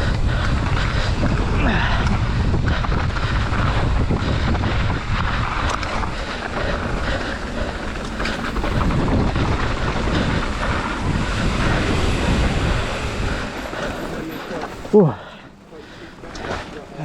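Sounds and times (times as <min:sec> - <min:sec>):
wind rush on microphone: 0:00.0 - 0:14.9
low tyre rumble: 0:00.0 - 0:17.0
bike rattling clicks: 0:02.0 - 0:11.8.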